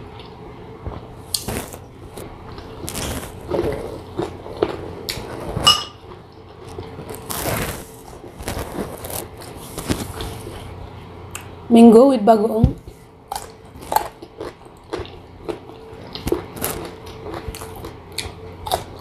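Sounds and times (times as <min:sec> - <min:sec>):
crunching and chewing mango: 0:01.0 - 0:11.5, 0:12.9 - 0:19.0
glass bowl clink: 0:05.6 - 0:06.0.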